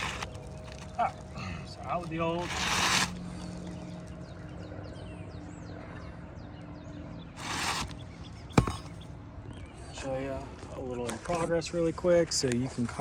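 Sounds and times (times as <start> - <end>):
shingle scraping: 0.0 - 4.1, 7.4 - 9.1.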